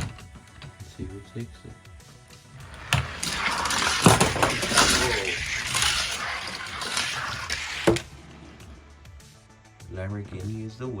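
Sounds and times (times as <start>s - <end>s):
toy cars clacking: 0.0s - 0.9s, 2.6s - 8.2s
toy car wheels rattling on track: 2.6s - 8.2s.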